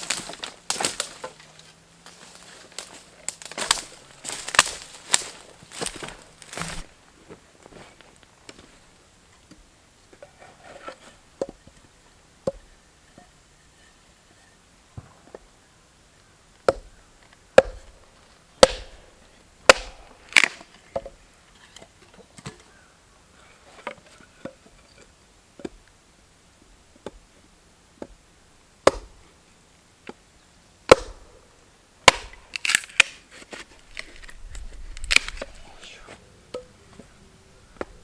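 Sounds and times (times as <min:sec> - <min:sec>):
axe chopping wood: 0:16.7 - 0:16.9, 0:17.6 - 0:18.0, 0:18.6 - 0:21.1, 0:28.8 - 0:29.2, 0:30.9 - 0:31.4, 0:32.0 - 0:33.1.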